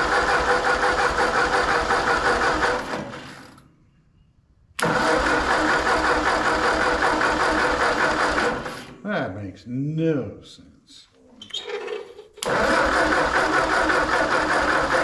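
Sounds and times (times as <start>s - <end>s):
tractor engine cranking on starter: 0.0s - 3.7s, 4.8s - 9.0s, 11.4s - 15.0s.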